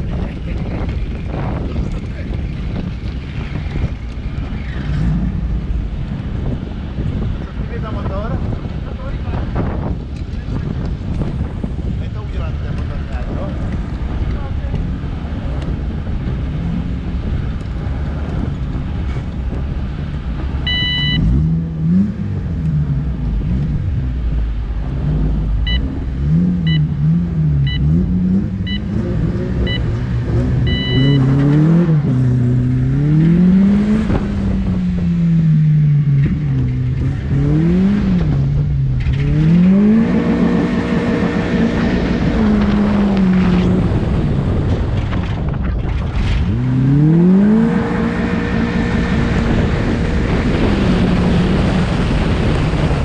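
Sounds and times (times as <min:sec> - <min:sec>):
car engine revving: 0:00.0 - 0:53.0
start clock beeps: 0:20.7 - 0:21.3, 0:25.6 - 0:25.9, 0:26.6 - 0:26.9, 0:27.6 - 0:27.9, 0:28.6 - 0:28.9, 0:29.6 - 0:29.9, 0:30.6 - 0:31.3.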